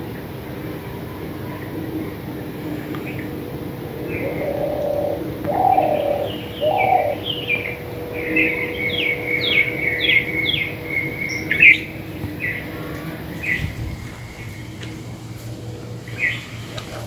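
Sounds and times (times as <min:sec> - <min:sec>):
bird cooing: 0:03.0 - 0:13.3
steady high tone: 0:03.2 - 0:13.4
bird call falling notes: 0:03.8 - 0:12.7.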